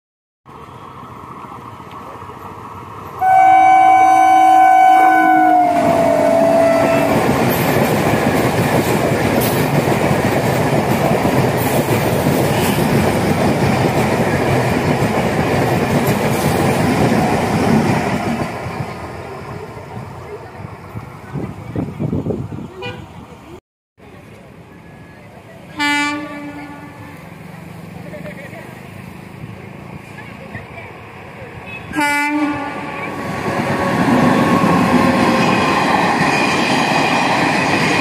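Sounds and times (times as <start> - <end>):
train horn: 3.2 - 7.3, 25.8 - 27.2, 31.7 - 33.1
train wheels clattering on rails: 5.8 - 19.1.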